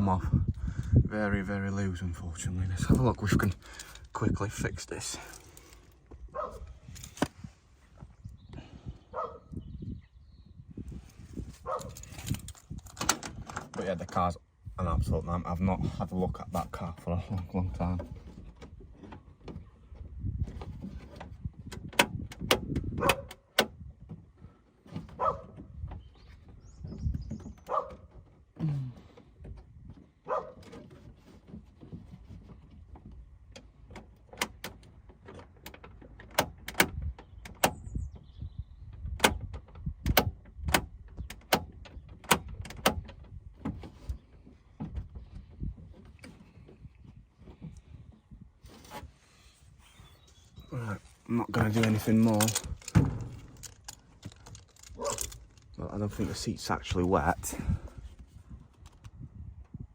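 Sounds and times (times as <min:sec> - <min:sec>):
clicks and knocks of door mechanism: 0:11.8 - 0:14.1, 0:21.1 - 0:23.8, 0:33.5 - 0:37.9, 0:39.0 - 0:44.1, 0:51.0 - 0:55.8
short scrapes: 0:48.6 - 0:53.6.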